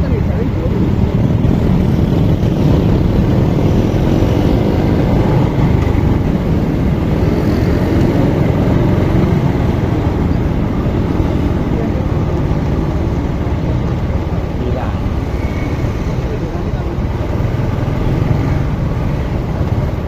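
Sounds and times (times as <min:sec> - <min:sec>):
wind and road noise: 0:00.0 - 0:20.0.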